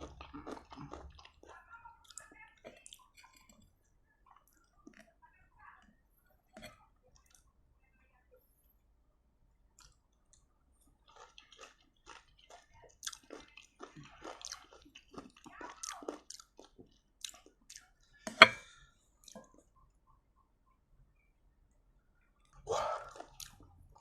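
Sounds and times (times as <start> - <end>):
crunchy food chewing: 0.0 - 5.2, 9.8 - 18.4, 22.4 - 24.0.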